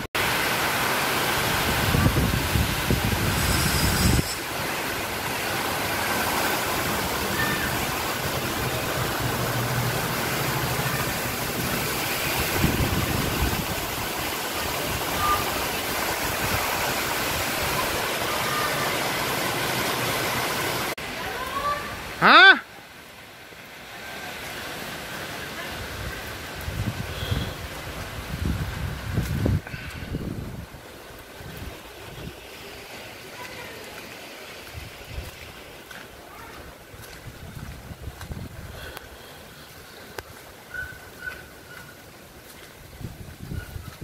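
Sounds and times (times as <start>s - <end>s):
heavy rain pouring: 0.0s - 44.0s
wind buffeting microphone: 1.6s - 4.4s, 12.3s - 18.0s, 25.9s - 32.4s, 37.0s - 38.8s, 42.8s - 44.0s.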